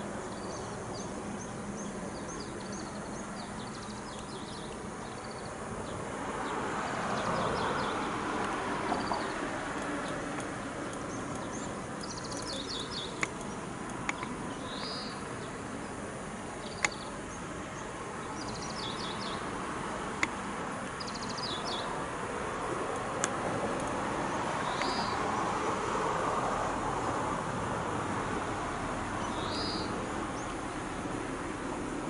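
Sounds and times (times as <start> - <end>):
outdoor background hiss: 0.0 - 32.0
small bird chirping: 8.9 - 15.6, 16.6 - 17.2, 18.3 - 19.5, 21.0 - 22.0, 24.6 - 25.3, 29.2 - 30.6
sharp clicks: 9.7 - 15.0, 16.7 - 17.0, 20.2 - 20.4, 22.9 - 24.0.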